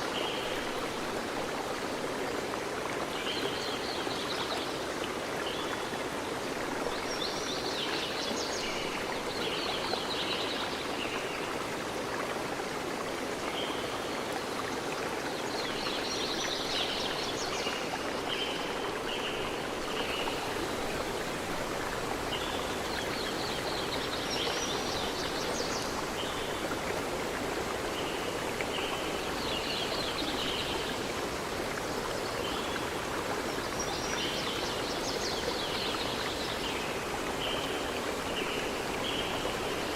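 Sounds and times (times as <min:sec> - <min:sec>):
flowing stream: 0:00.0 - 0:39.9.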